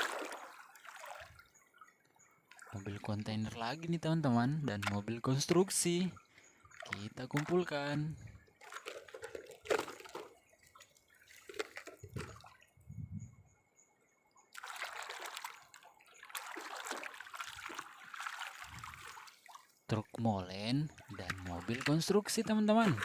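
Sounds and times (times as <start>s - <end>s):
water splashing and trickling: 0.0s - 23.0s.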